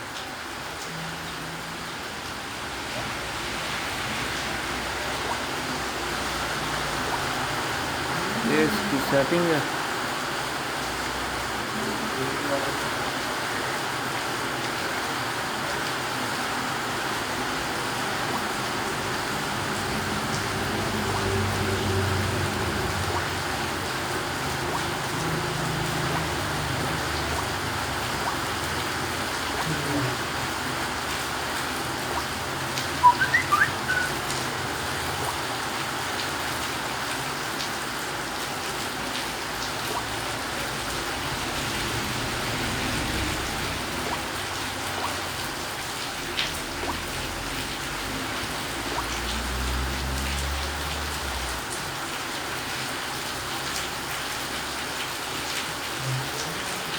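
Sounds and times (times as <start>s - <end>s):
rain-like hiss: 0.0s - 56.9s
quick high chirps: 32.9s - 34.3s.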